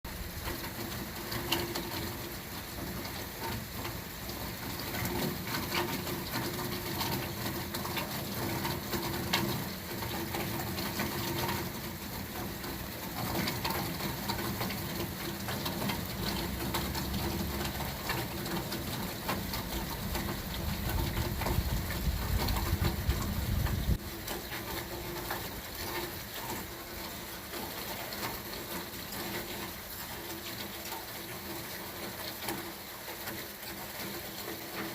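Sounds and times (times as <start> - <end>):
rain falling: 0.1 - 34.9.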